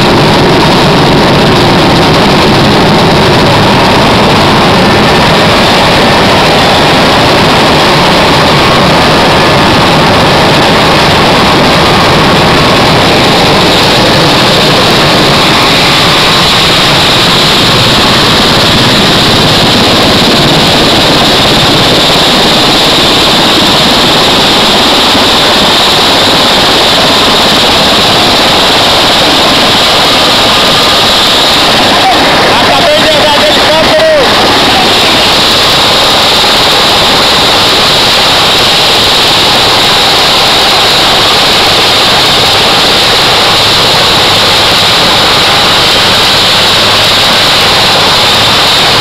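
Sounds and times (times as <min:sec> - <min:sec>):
helicopter rotor and engine: 0:00.0 - 0:49.0
high whine: 0:00.0 - 0:49.0.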